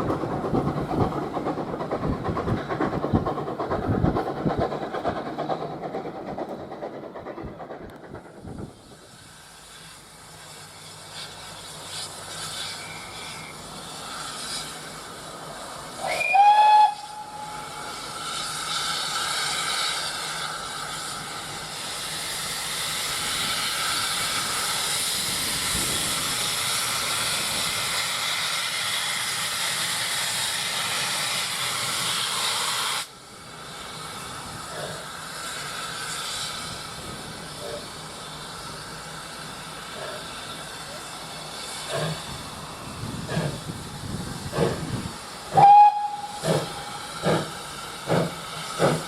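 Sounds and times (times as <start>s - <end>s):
steam hissing: 0.0s - 49.0s
steam locomotive whistle: 16.0s - 18.5s, 45.5s - 47.3s.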